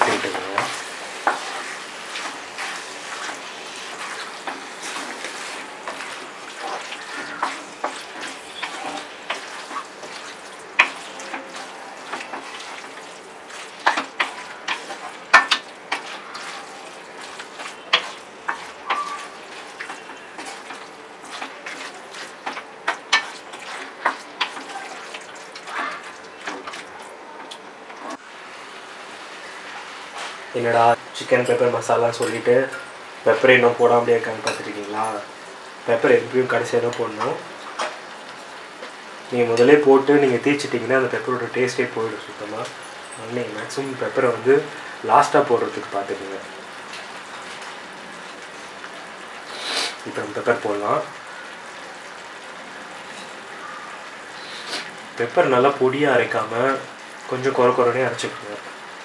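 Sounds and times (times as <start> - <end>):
spatula clacking and scraping a pan: 0.0 - 28.0
chicken frying and sizzling: 0.0 - 59.0.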